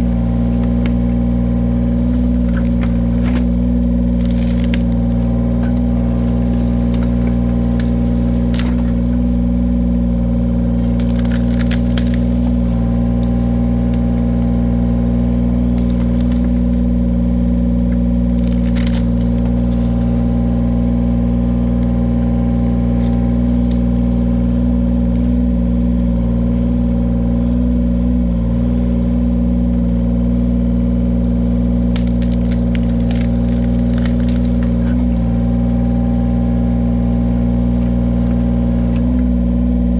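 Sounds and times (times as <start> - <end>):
wood cracking: 0.0 - 29.7, 30.5 - 39.9
wood splitter engine running: 0.0 - 39.9.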